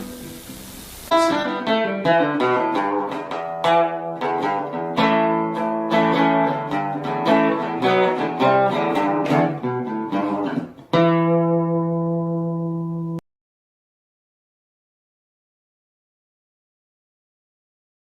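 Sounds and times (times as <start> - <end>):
acoustic guitar jingle: 0.0 - 13.2.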